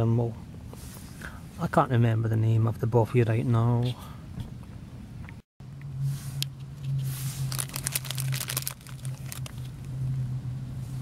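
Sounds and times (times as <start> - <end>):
steady low hum: 0.0 - 11.0
plastic snack packet crinkling: 7.5 - 9.7.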